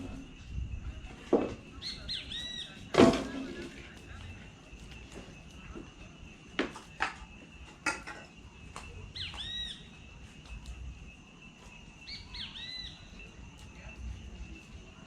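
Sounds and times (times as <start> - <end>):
bird calling: 1.7 - 2.9, 9.1 - 10.0.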